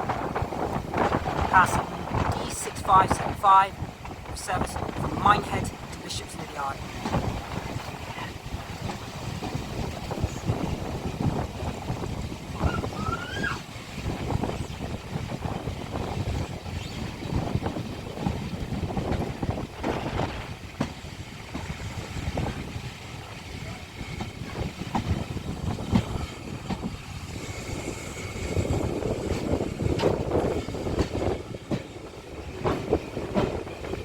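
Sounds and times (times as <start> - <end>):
wheel squeal: 12.6 - 13.6
train wheels clattering over rail joints: 15.1 - 34.0.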